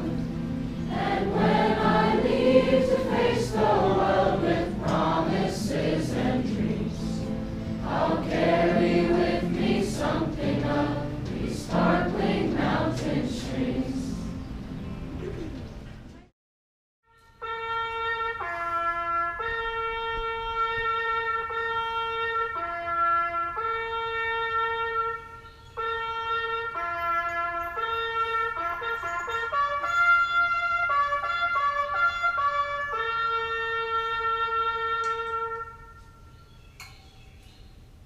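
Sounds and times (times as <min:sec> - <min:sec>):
solo brass instrument melody: 0:17.1 - 0:36.4.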